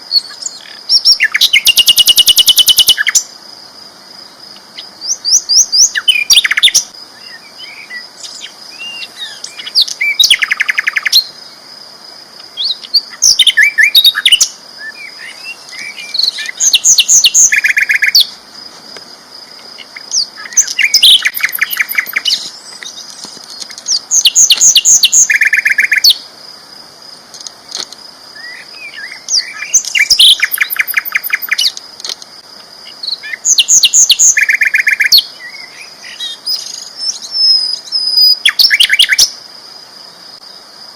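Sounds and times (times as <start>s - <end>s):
flycatcher singing: 0.0s - 3.3s, 4.4s - 11.6s, 12.4s - 18.4s, 19.4s - 26.3s, 27.4s - 32.2s, 32.8s - 39.4s
soft bird twitters: 4.5s - 11.4s, 19.6s - 26.2s.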